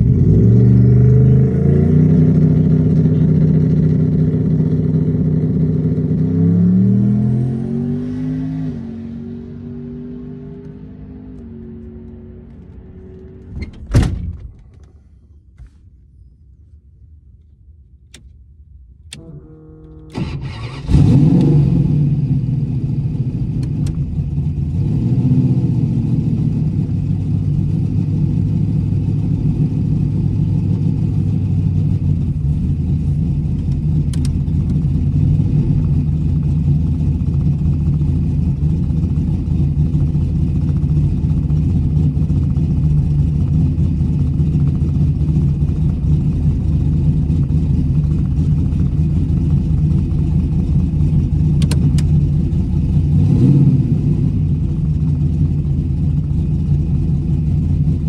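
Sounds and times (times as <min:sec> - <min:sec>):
engine starter cranking: 0:19.1 - 0:21.6
v eight engine running: 0:19.1 - 0:25.0, 0:25.8 - 0:58.0.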